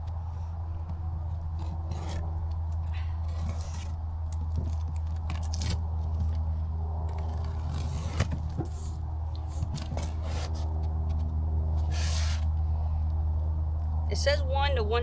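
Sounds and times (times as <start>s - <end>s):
steady low hum: 0.0s - 15.0s
cardboard scraping and rustling: 0.9s - 6.5s, 7.1s - 12.6s.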